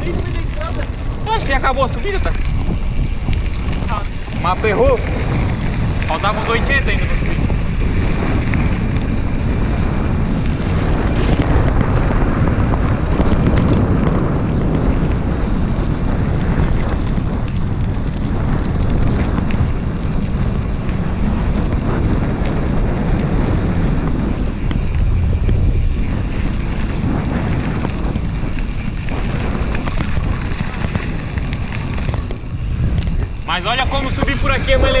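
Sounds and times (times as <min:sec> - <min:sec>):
faint ticks and rattles: 0:00.0 - 0:35.0
wind buffeting microphone: 0:00.0 - 0:35.0.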